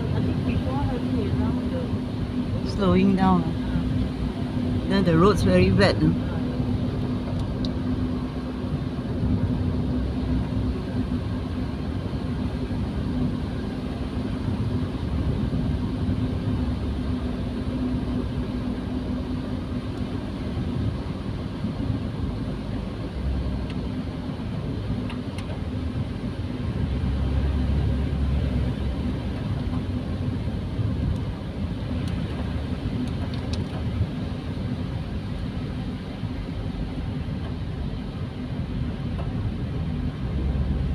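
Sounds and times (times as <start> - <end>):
engine and tyres rumbling: 0.0 - 40.9.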